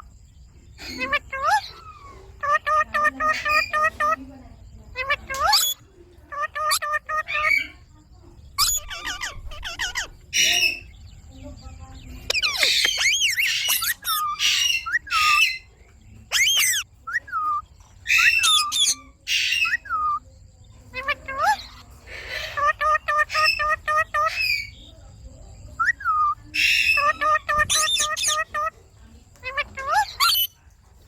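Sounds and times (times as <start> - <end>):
parakeet chattering: 0.8 - 20.2, 20.8 - 24.9, 25.6 - 30.6
parakeet screeching and whistling: 5.0 - 5.8, 8.6 - 10.9, 12.2 - 15.7, 16.3 - 20.2, 20.9 - 24.8, 25.8 - 28.7.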